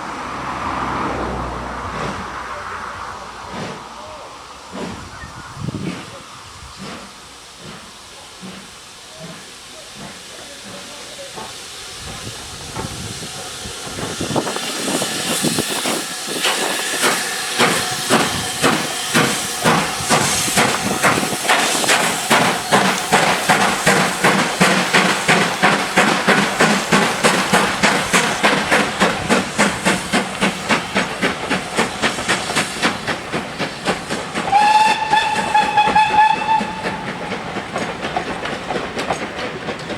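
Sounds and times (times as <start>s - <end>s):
steam locomotive chuffing: 0.0s - 39.9s
locomotive whistle: 34.4s - 37.2s.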